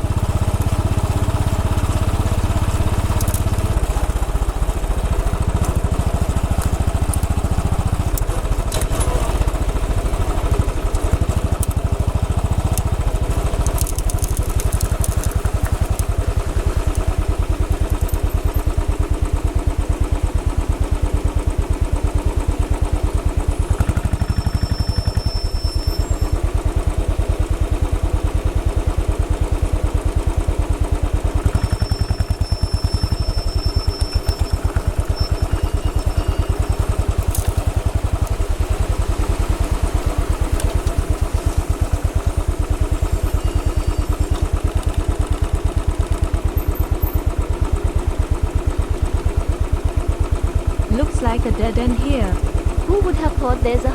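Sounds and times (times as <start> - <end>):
motorcycle engine running: 0.0 - 53.9
clicks and rattles: 12.7 - 18.7.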